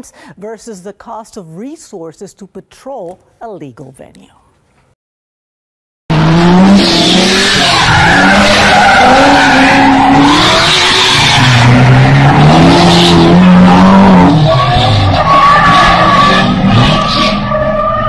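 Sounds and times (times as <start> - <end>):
car engine revving: 6.1 - 18.0.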